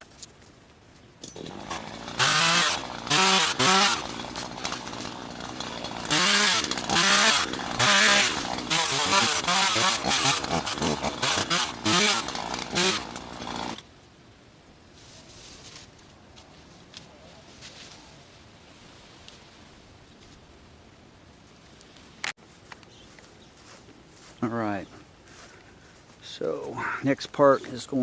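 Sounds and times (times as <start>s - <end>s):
chainsaw revving: 1.4s - 13.8s.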